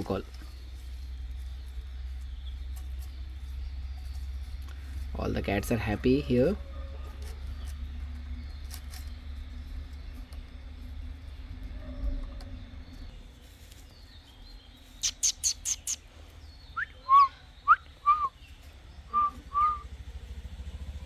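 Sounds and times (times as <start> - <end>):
bird calling: 14.9 - 19.9.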